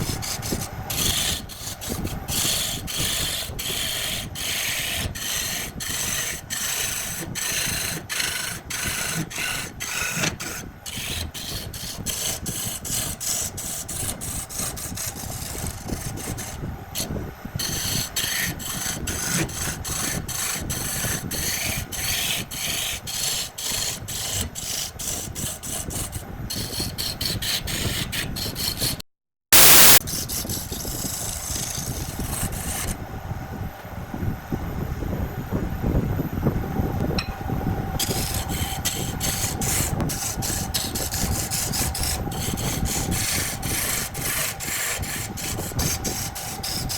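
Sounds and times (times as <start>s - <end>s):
lathe tool scraping wood: 0.0s - 29.0s, 29.6s - 33.0s, 38.0s - 46.9s
loud hiss: 29.6s - 30.0s.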